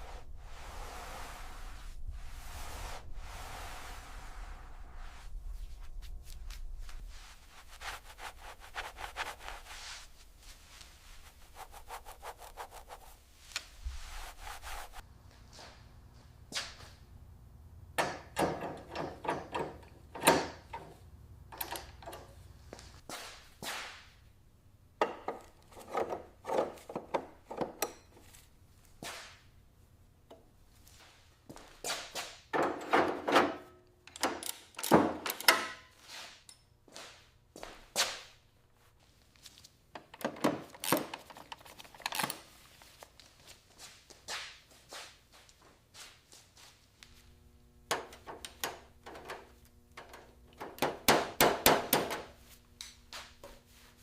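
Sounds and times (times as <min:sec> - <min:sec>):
quick rubbing strokes: 0:00.0 - 0:15.0
clicks and knocks of hand work: 0:18.0 - 0:22.4, 0:25.0 - 0:28.3, 0:47.9 - 0:53.6.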